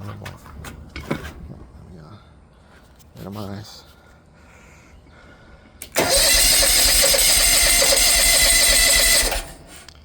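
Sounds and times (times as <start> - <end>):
electric starter cranking engine: 5.8 - 10.0.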